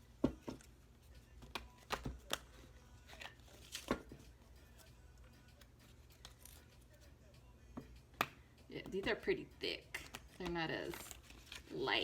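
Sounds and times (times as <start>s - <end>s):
cards being shuffled: 1.4s - 6.9s, 9.8s - 12.0s.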